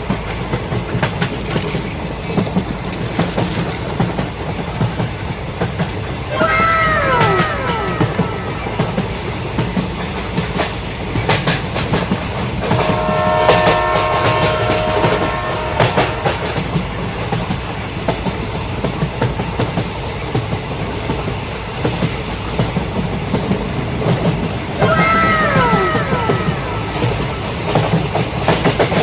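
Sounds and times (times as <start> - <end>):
model train rattling on track: 0.0 - 29.0
train horn: 12.6 - 17.2.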